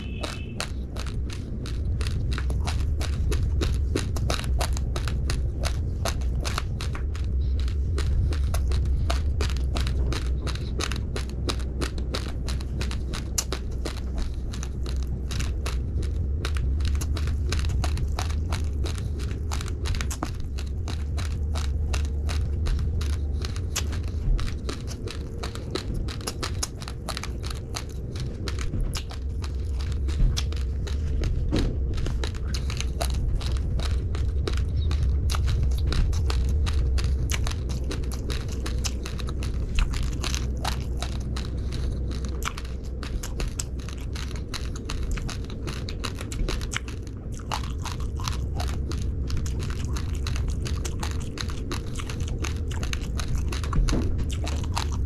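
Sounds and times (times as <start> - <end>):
raw rice being chewed: 0.0 - 55.0
steady low rumble: 0.0 - 55.0.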